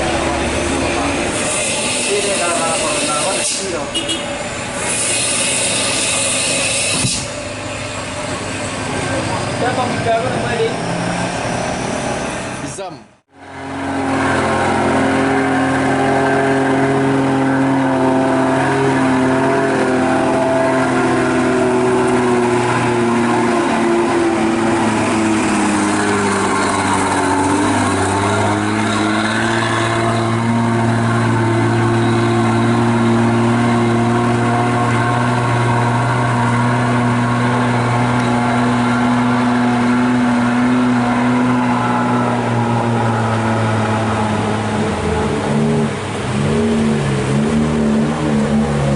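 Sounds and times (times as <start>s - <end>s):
truck engine running under load: 13.3s - 48.9s.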